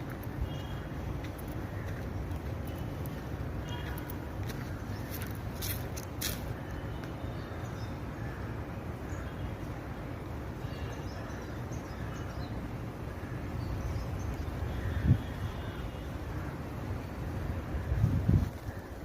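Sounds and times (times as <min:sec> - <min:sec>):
wind rumble on microphone: 0:17.3 - 0:19.0.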